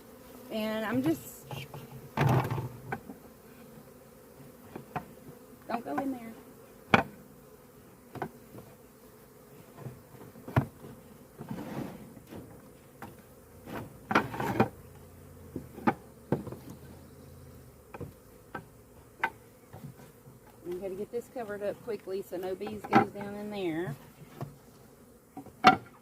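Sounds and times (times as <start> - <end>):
bees buzzing: 0.0 - 26.0
wooden knocks of hive frames: 0.9 - 6.2, 6.8 - 7.2, 8.0 - 8.8, 9.7 - 16.9, 17.8 - 21.6, 22.4 - 24.7, 25.3 - 26.0.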